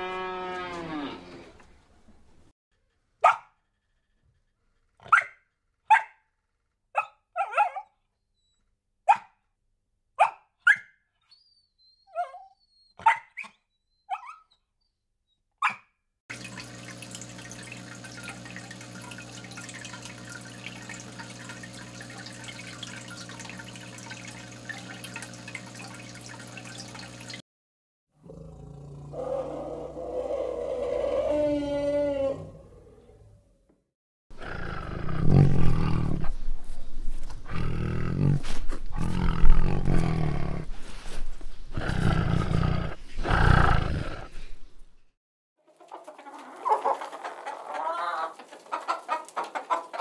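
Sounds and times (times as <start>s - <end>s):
puppy yapping: 5.0s - 6.2s, 7.0s - 7.9s, 12.1s - 14.5s
low pump hum with moving water: 16.3s - 27.4s.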